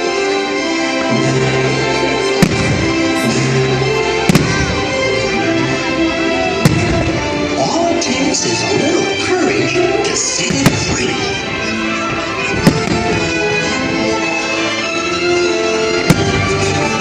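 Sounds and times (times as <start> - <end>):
music with long held notes: 0.0 - 17.0
fireworks bursting with sharp bangs: 2.4 - 3.4, 4.3 - 5.2, 6.6 - 7.2, 10.6 - 13.3, 16.1 - 16.6.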